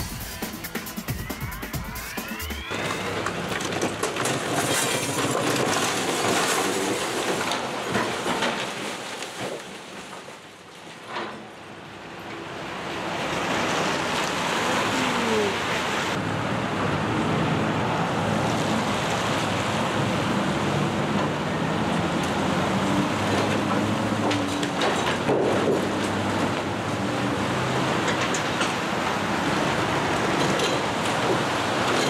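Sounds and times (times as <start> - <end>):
diesel engines running: 0.0 - 8.2, 11.7 - 32.0
tyres hissing on wet road: 13.0 - 16.2.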